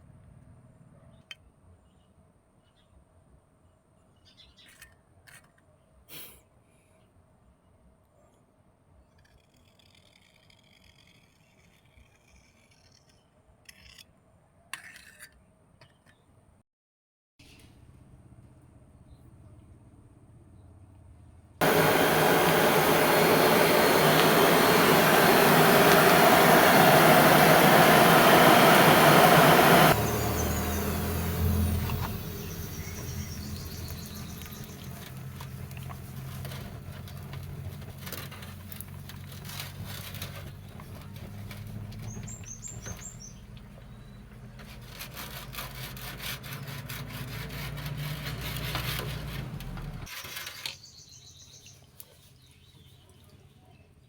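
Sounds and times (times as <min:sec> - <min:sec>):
power tool grinding steel: 0:21.6 - 0:37.2, 0:44.7 - 0:50.1
low hum: 0:21.6 - 0:44.4.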